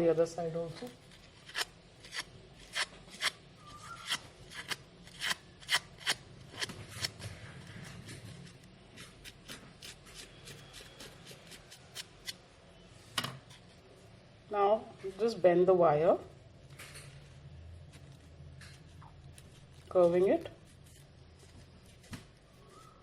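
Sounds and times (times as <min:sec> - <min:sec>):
crepe paper crackling: 0:17.8 - 0:22.6.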